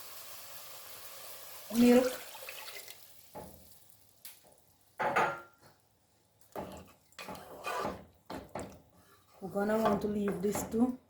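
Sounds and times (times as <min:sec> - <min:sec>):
frying sizzle in a pot: 0:00.0 - 0:05.7
utensil scraping and knocking in pot: 0:06.5 - 0:10.8.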